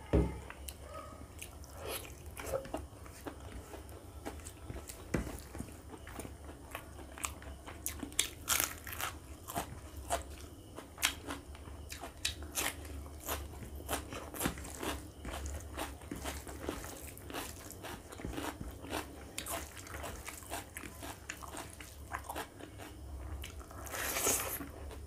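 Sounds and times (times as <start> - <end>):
person chewing with crunches: 0.6 - 25.0.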